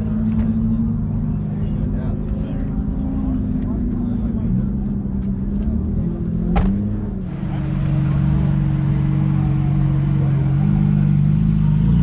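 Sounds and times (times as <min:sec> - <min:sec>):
car engine idling: 0:07.0 - 0:12.0.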